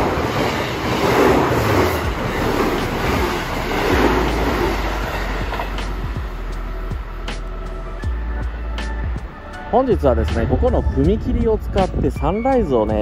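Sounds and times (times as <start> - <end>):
electric train passing at speed: 0.0 - 13.0.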